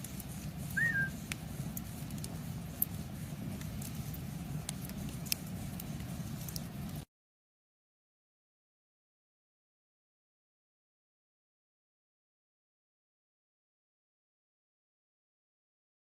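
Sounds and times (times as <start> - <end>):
campfire crackling and popping: 0.0 - 7.0
steady low rumble: 0.0 - 7.0
short chirp: 0.8 - 1.1.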